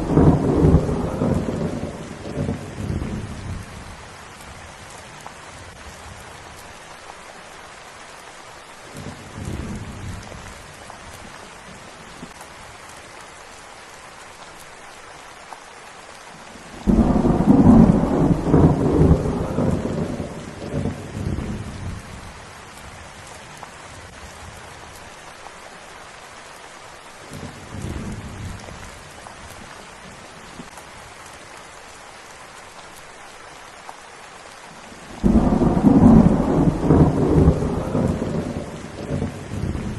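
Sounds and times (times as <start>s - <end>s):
thunder rumbling: 0.0s - 4.5s, 16.7s - 22.9s, 35.0s - 39.9s
steady rain: 0.0s - 39.9s.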